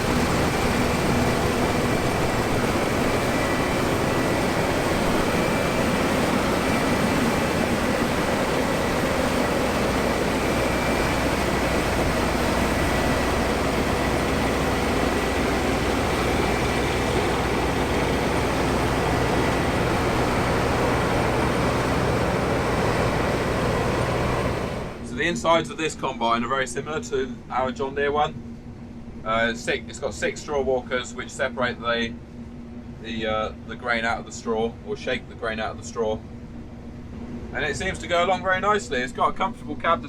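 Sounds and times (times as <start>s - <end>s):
combine harvester droning: 0.0s - 40.0s.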